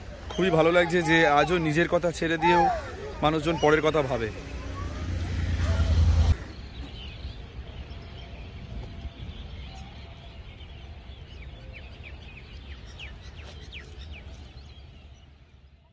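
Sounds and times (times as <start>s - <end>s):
birds chirping: 0.0s - 15.9s
low outdoor rumble: 4.2s - 6.5s.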